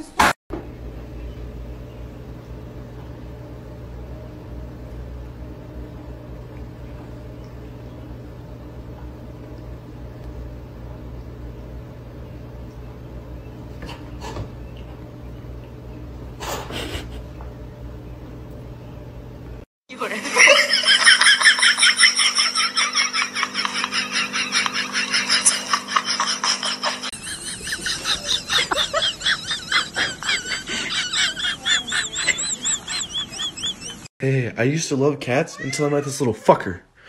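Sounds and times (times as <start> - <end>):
low room hum: 0.6 - 37.0
cats hissing: 16.4 - 17.4.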